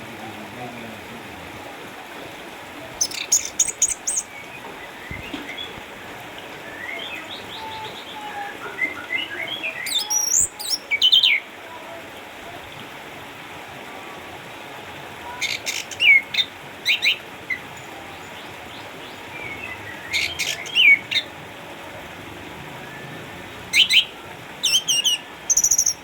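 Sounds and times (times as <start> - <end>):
thrush singing: 0.0 - 12.1.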